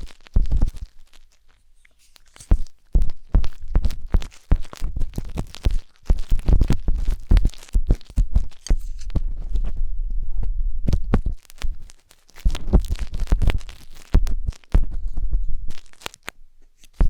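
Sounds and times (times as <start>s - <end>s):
skewer scraping microphone ear: 0.0s - 17.0s
dull low thuds: 2.6s - 8.5s, 9.1s - 11.8s, 12.5s - 15.8s.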